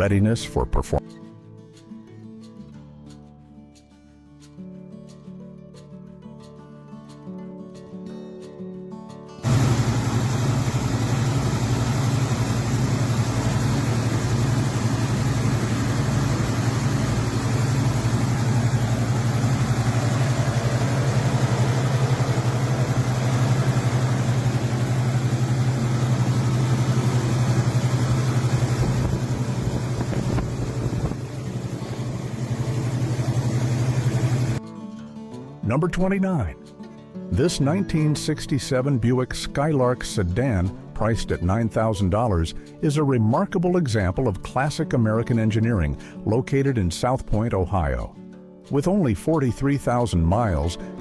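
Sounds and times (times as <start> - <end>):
car engine running steadily: 9.4 - 34.6.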